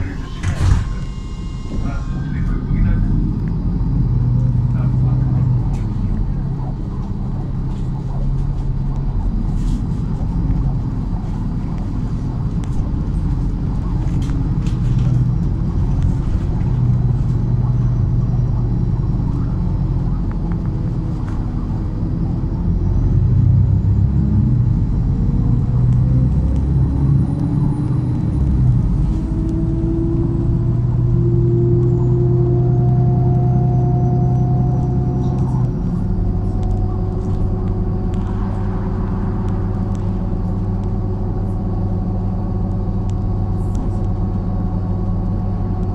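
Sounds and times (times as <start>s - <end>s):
faint high whine: 0.0s - 3.8s
bus engine and road rumble: 0.0s - 45.9s.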